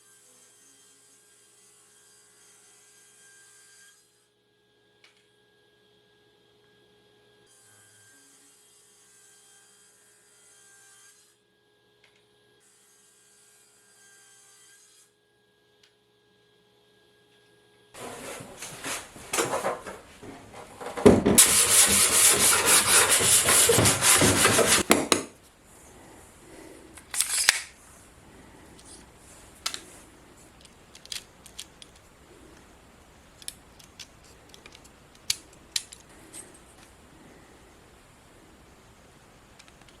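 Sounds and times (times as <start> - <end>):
wood being sanded by hand: 21.3 - 24.9.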